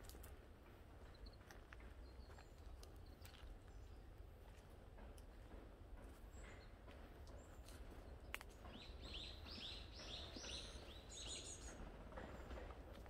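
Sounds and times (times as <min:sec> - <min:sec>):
songbird chirping: 0:01.1 - 0:04.7, 0:06.0 - 0:13.0.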